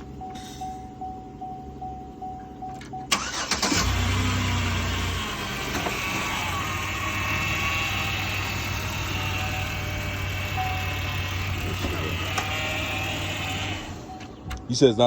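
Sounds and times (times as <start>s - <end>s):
car engine starting and idling: 0.0s - 15.0s.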